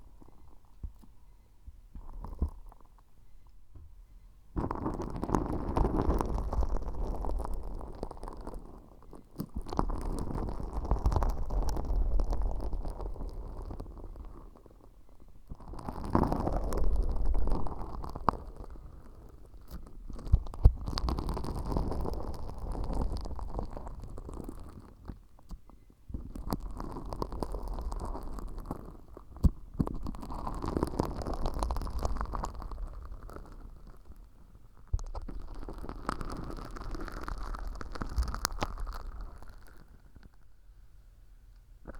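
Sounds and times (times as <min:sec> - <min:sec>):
sticky slime squishing and crackling: 0:15.5 - 0:25.1, 0:26.1 - 0:40.2.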